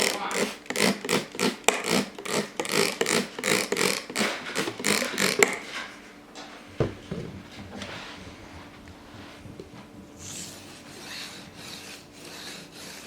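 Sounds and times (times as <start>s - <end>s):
knife scraping on whetstone: 10.2s - 13.0s.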